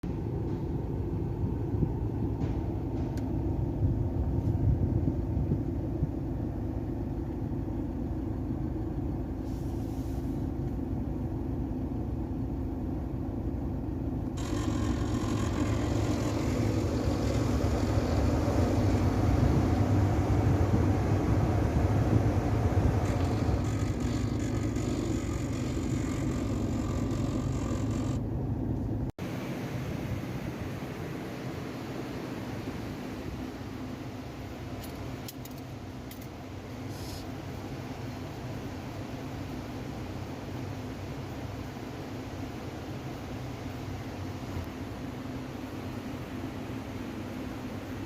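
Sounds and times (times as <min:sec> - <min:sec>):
low engine rumble inside cab: 0:00.0 - 0:48.0
blower fan air rush: 0:13.8 - 0:34.7.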